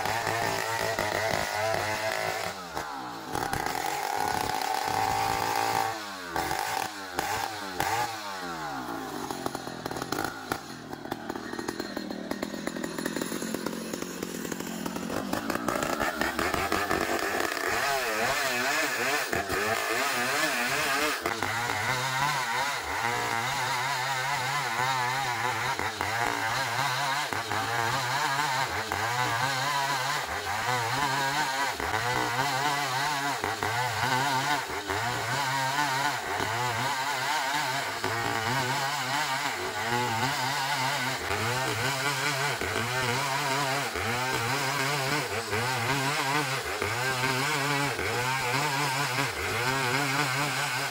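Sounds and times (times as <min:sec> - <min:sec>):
sawmill sawing log: 0:00.0 - 0:50.9.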